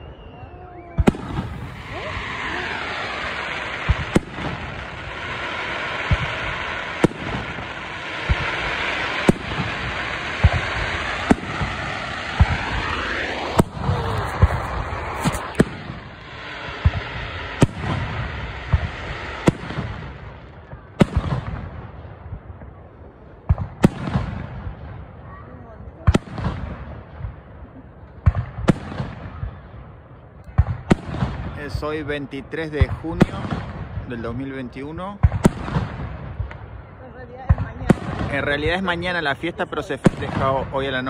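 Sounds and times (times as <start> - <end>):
fireworks bursting with bangs: 0.0 - 41.0
fireworks hiss: 1.0 - 20.3.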